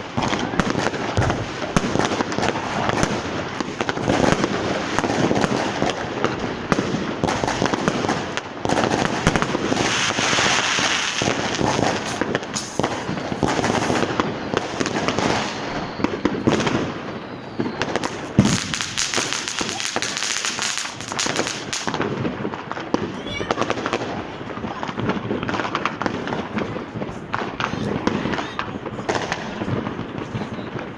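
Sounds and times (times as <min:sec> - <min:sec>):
hissing crackle: 0:00.0 - 0:23.1
fireworks and firecrackers banging: 0:00.0 - 0:30.9.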